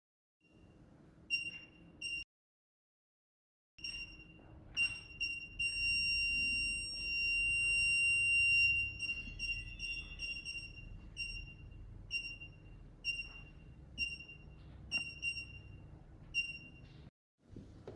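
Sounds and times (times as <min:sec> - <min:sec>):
parking sensor beeping: 0:01.3 - 0:02.2, 0:03.8 - 0:17.1.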